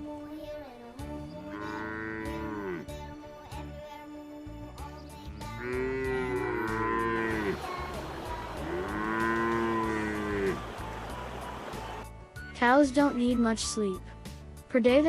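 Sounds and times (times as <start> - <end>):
faint background music: 0.0 - 15.0
cow mooing: 1.3 - 2.9, 5.6 - 7.6, 8.6 - 10.8.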